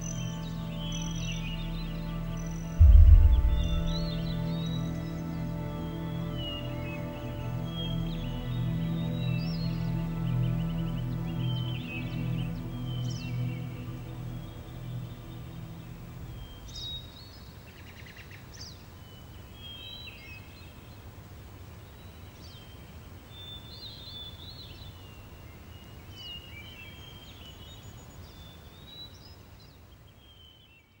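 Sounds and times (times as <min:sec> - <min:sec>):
birds chirping: 0:00.0 - 0:17.2
low ambient music drone: 0:00.0 - 0:17.3
outdoor background hiss: 0:00.0 - 0:31.0.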